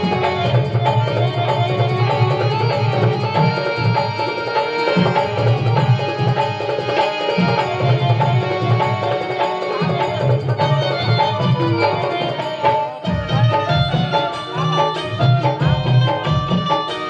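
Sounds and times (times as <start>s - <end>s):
hand drums: 0.0s - 17.0s.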